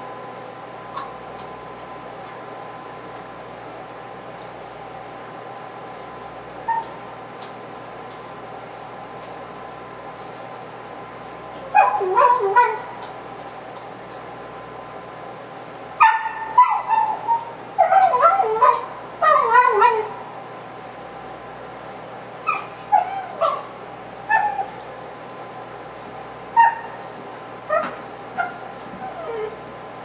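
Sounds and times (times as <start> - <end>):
puppy yipping and whining: 6.7 - 7.0, 11.8 - 12.8, 16.0 - 20.1, 22.5 - 23.7, 24.3 - 24.8, 26.6 - 29.6.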